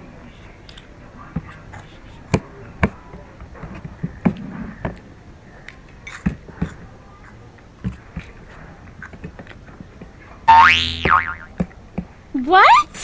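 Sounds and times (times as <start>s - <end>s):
cutlery clinking on plates: 6.1s - 9.2s.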